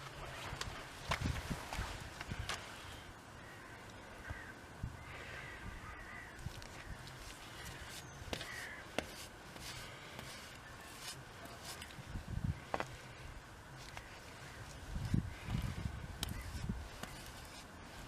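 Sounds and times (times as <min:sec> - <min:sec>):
birds calling harshly: 0:02.7 - 0:12.0, 0:13.8 - 0:17.6.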